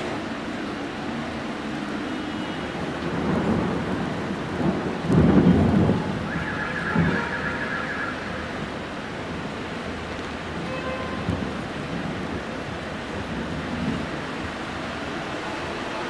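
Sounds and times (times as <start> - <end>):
heavy rain hissing: 0.0 - 16.0
thunder rumbling: 2.8 - 9.5.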